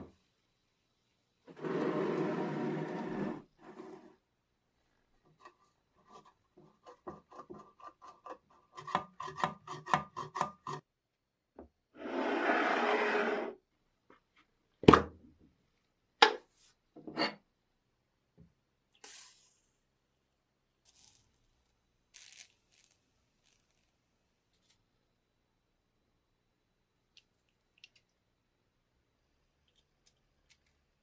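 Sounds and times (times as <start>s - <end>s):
hiss: 19.0s - 19.8s.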